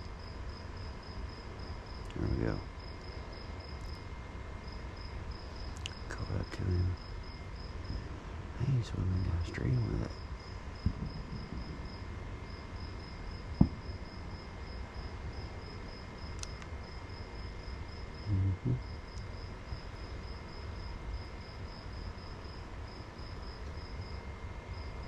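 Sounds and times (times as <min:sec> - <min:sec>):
cricket chirping: 0:00.0 - 0:25.0
low steady rumble: 0:00.0 - 0:25.0
dull low thumps: 0:10.8 - 0:12.0, 0:13.5 - 0:13.9
sharp knock: 0:13.6 - 0:13.8.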